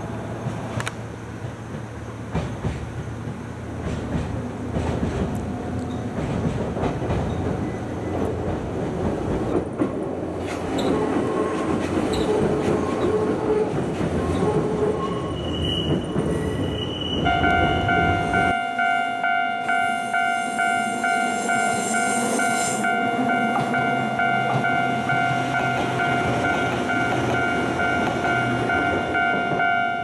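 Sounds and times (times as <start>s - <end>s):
train wheels rumbling on rail: 0.0s - 18.6s, 19.6s - 30.0s
train whine and squeal: 0.0s - 30.0s
steady ringing tone: 17.3s - 30.0s.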